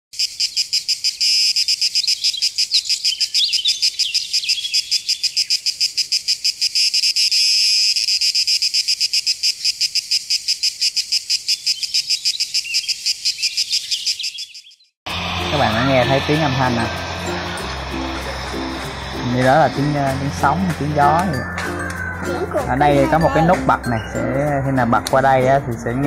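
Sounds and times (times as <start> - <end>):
insect calling in rapid pulses: 0.2 - 17.6.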